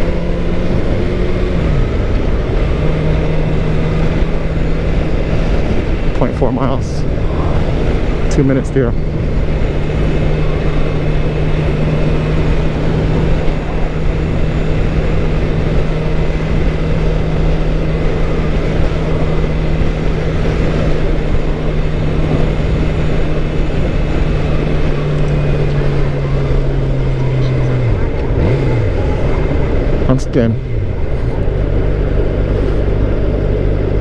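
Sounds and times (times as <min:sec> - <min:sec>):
motorcycle engine cruising: 0:00.0 - 0:34.0
wind noise rushing: 0:00.0 - 0:34.0.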